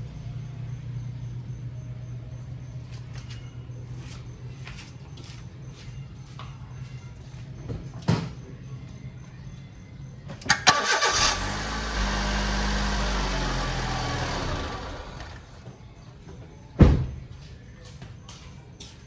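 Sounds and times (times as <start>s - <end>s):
car engine starting and running: 10.4s - 15.9s.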